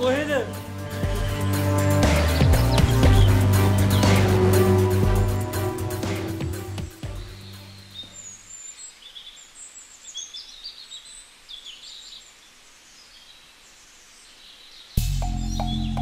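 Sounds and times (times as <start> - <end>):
small birds chirping: 0.0 - 4.6, 7.0 - 16.0
low music tone: 0.0 - 8.1, 15.0 - 16.0.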